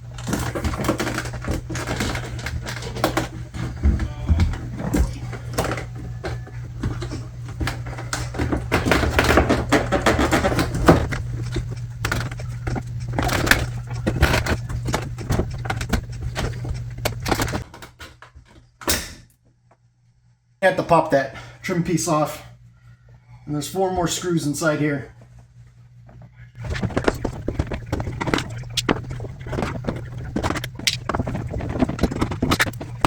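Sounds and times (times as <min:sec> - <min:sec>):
low hum: 0:00.0 - 0:17.6, 0:25.4 - 0:33.0.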